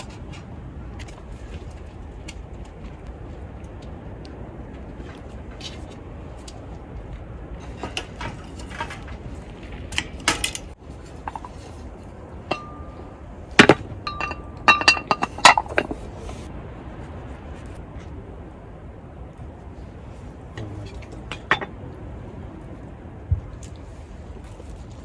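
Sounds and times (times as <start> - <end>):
low background noise: 0.0 - 25.0
dishes and utensils clinking: 12.4 - 16.5, 20.8 - 21.7.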